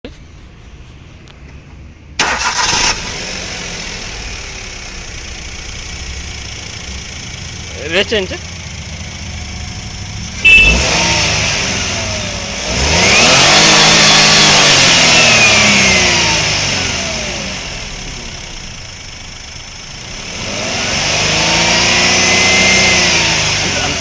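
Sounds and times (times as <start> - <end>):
car engine revving: 2.2 - 24.0
sharp bang: 10.4 - 11.1.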